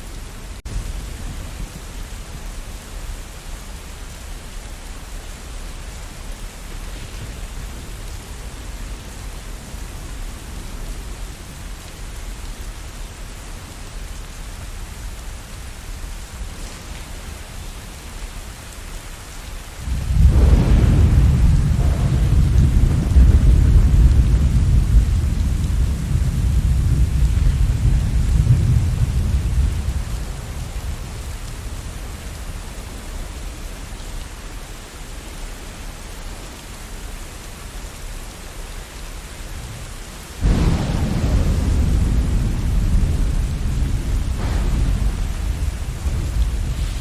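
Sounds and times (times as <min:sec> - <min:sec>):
steady rain: 0:00.0 - 0:47.0
thunder rumbling: 0:19.8 - 0:33.9, 0:39.7 - 0:47.0.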